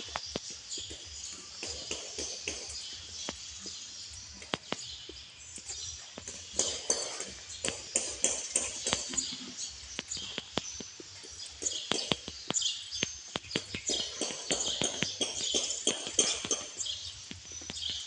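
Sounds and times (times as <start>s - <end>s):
chorus of high animal chirps: 0.0s - 18.0s
sharp animal clicks: 4.2s - 7.0s, 7.6s - 18.0s.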